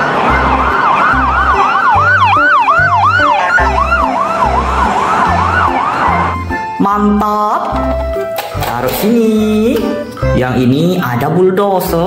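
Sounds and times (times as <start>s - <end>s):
higher siren: 0.0s - 6.8s
ambulance siren sweeping: 0.0s - 10.4s.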